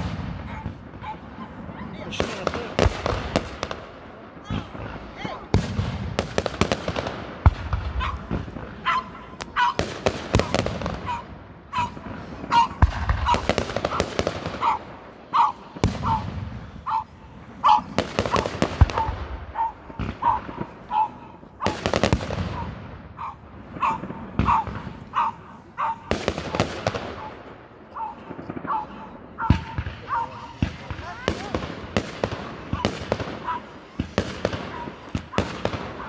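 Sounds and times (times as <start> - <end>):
fireworks bangs and crackling: 0.0 - 36.0
dog barking: 0.4 - 2.1, 8.0 - 9.8, 10.5 - 14.0, 14.6 - 21.8, 22.6 - 26.1, 27.9 - 30.6, 32.8 - 33.8, 34.6 - 36.0.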